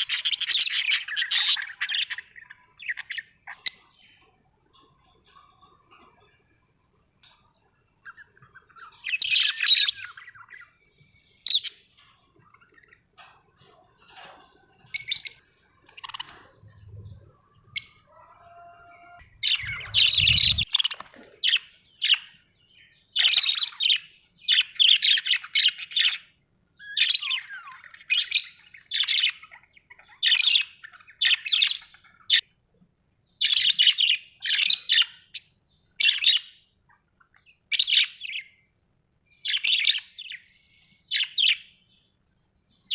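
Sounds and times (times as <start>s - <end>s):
parrots chirping and squawking: 0.0s - 3.9s, 11.5s - 22.2s, 26.9s - 32.4s
low thumps: 19.2s - 20.7s.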